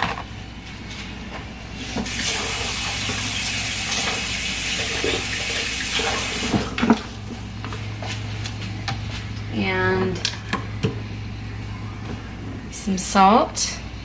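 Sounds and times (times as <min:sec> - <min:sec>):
tap running into a sink: 0:02.0 - 0:07.0.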